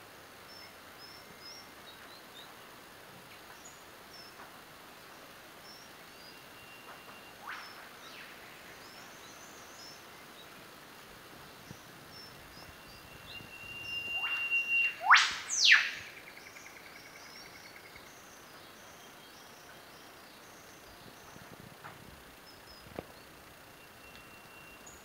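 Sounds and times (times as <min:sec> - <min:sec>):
faint high chirps: 0:05.6 - 0:10.6, 0:11.6 - 0:21.6, 0:22.4 - 0:25.0
bird whistle with whip-like sweeps: 0:06.8 - 0:08.3, 0:13.0 - 0:16.1
bird sweeping call: 0:06.8 - 0:09.0, 0:12.6 - 0:16.6.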